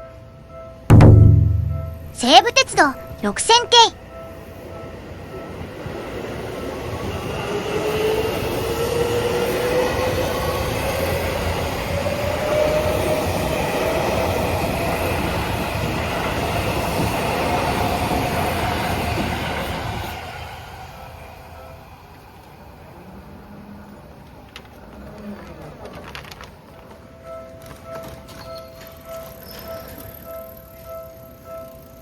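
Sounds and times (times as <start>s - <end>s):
train wheel-on-rail running noise: 4.3s - 25.6s.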